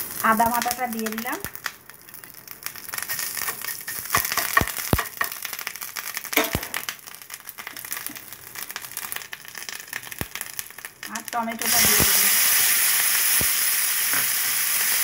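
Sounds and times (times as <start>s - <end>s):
spices frying in hot oil: 0.0s - 15.0s.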